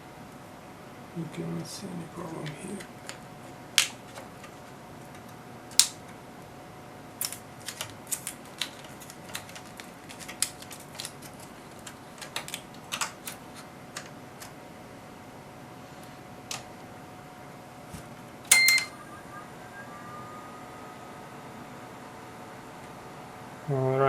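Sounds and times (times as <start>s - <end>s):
faint steady tone: 18.5s - 24.0s.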